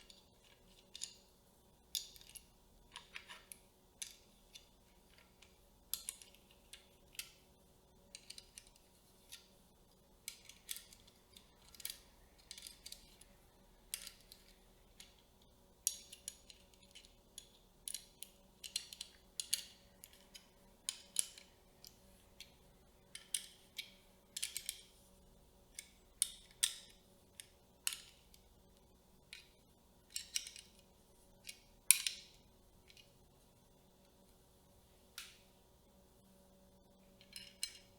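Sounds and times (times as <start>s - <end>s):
metal and plastic parts clicking: 0.0s - 1.2s, 1.9s - 7.5s, 8.1s - 9.5s, 10.2s - 13.3s, 13.9s - 22.5s, 23.1s - 24.9s, 37.2s - 37.9s.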